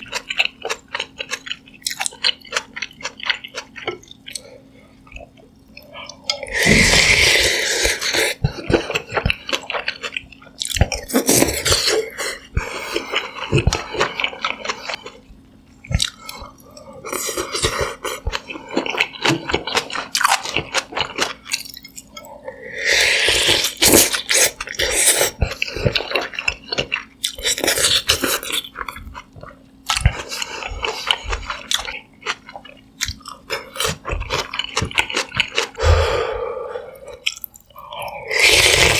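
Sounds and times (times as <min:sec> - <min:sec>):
close chewing and biting: 0:00.0 - 0:22.3, 0:23.0 - 0:36.0, 0:37.0 - 0:38.9
wet mouth sounds: 0:15.8 - 0:18.4, 0:26.8 - 0:38.9.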